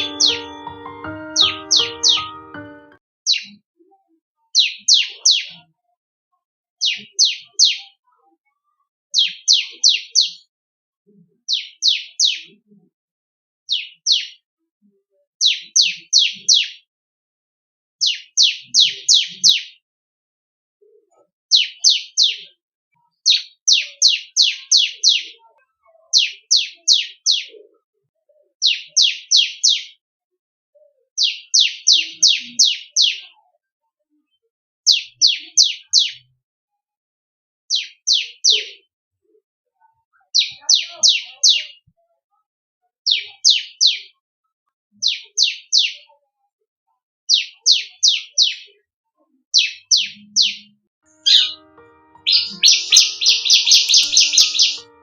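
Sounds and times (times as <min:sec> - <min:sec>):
bird singing high descending notes: 0:00.0 - 0:03.5, 0:50.4 - 0:55.0.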